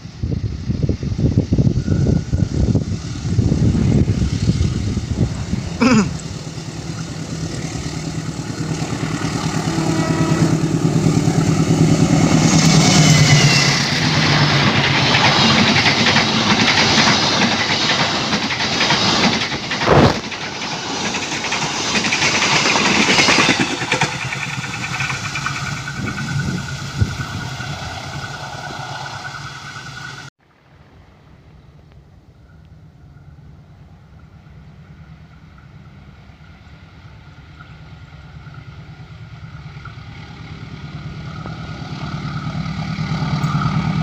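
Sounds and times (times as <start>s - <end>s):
coaches rumbling on rails: 0.0s - 30.3s, 31.8s - 44.0s
diesel locomotive engine drone: 0.0s - 44.0s.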